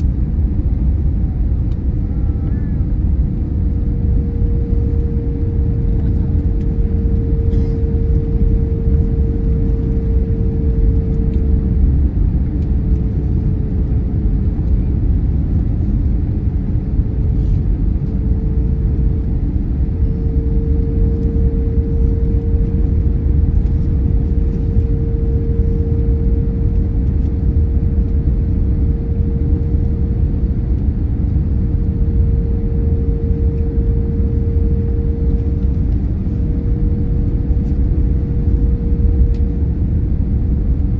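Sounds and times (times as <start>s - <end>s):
airliner low rumble and hum: 0.0s - 40.9s.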